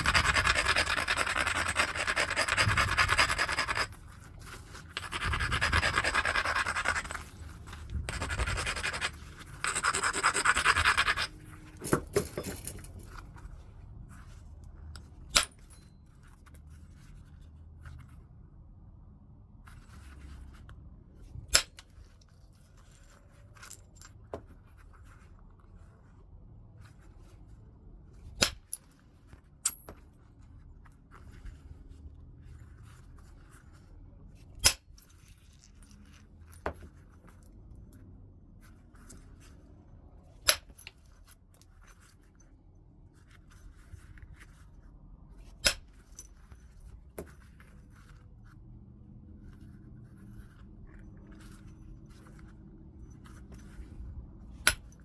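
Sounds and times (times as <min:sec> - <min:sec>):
scraping and rubbing on stone: 0:00.0 - 0:14.4.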